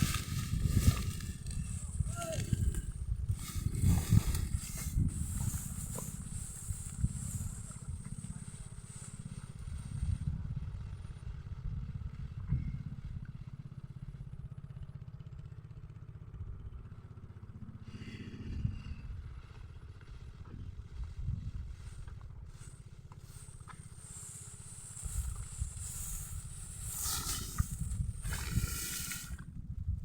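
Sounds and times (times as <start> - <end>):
small engine running: 0.0 - 30.0
insect buzz: 23.3 - 29.4.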